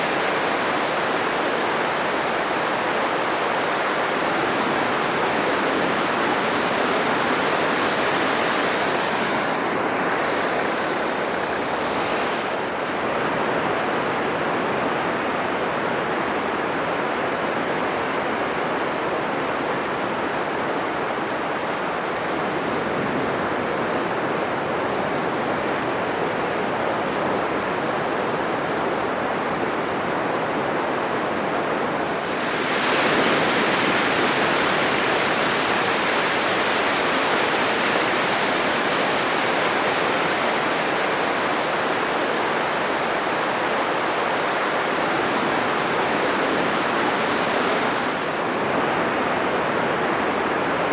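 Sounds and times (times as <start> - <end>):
surf breaking on sandy beach: 0.0 - 14.0, 31.3 - 49.6.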